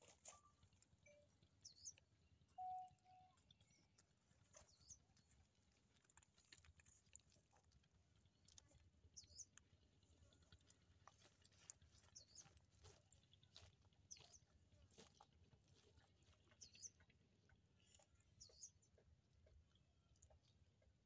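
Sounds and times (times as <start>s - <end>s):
faint clicks and ticks: 0.0s - 15.1s.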